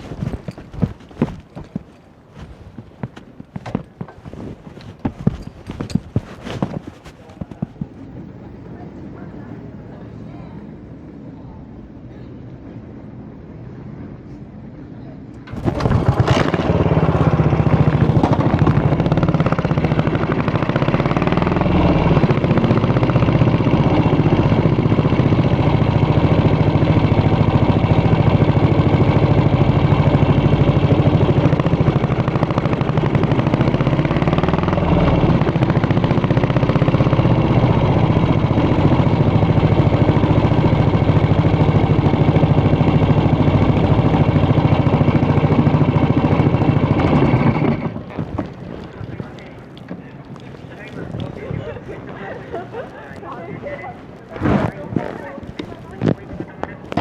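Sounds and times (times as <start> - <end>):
motorcycle engine idling: 15.4 - 53.5.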